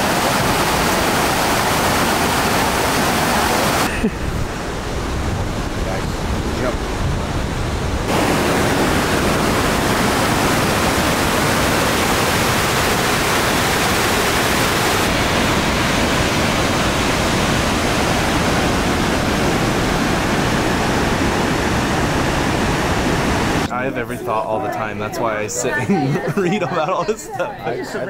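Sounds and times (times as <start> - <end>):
river rapids rushing over rocks: 0.0 - 5.8, 8.1 - 23.7.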